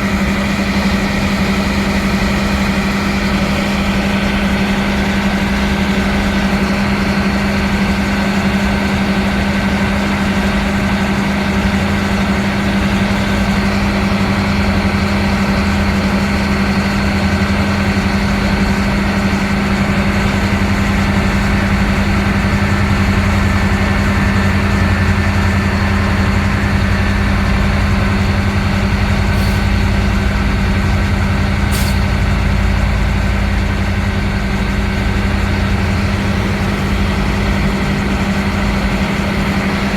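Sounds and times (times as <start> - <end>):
train carriage machinery hum: 0.0 - 39.9.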